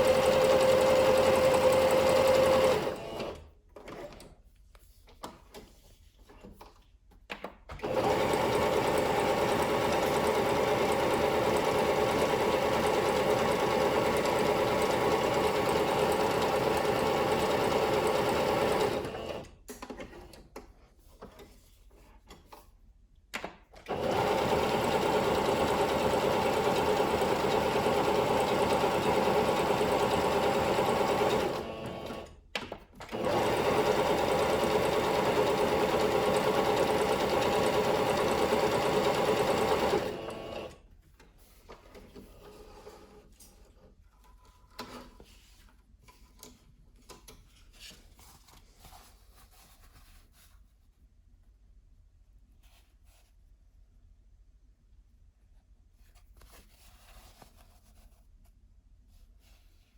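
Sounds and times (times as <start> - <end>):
sewing machine running: 0.0 - 3.5, 7.8 - 19.5, 23.9 - 32.4, 33.1 - 40.8
faint handling noises: 41.0 - 51.0.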